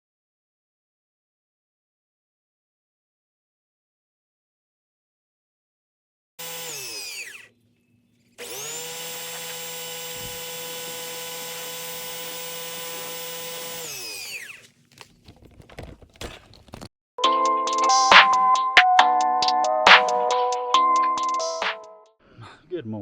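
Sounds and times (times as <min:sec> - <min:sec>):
power tool motor whine: 0:06.4 - 0:15.4
clicks and rattles: 0:14.5 - 0:16.9.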